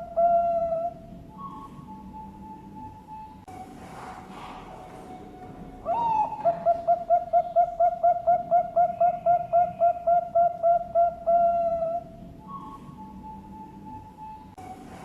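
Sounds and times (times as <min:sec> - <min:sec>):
dove cooing: 0:00.0 - 0:02.9, 0:04.2 - 0:14.3.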